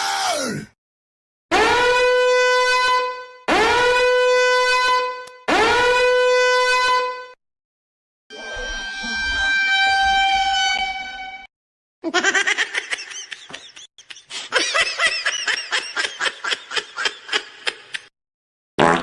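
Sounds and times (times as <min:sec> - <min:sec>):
long horn-like honk: 0:01.5 - 0:07.4, 0:08.3 - 0:11.5
high-pitched cackling laugh: 0:12.0 - 0:18.1.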